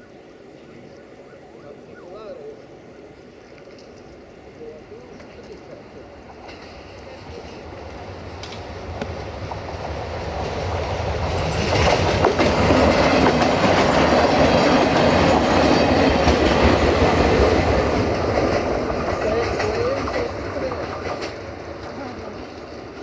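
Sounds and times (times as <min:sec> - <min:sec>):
diesel train engine: 0:04.0 - 0:23.0
train wheels clacking: 0:05.2 - 0:23.0.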